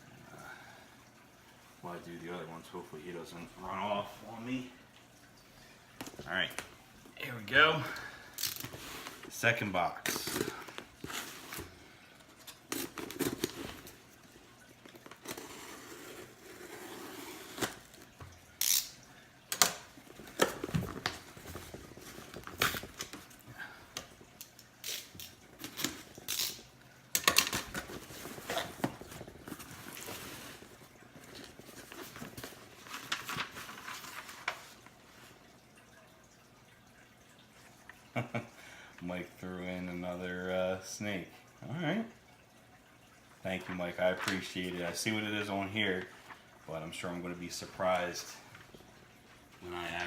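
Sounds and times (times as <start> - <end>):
packing material rustling: 27.2 - 34.8.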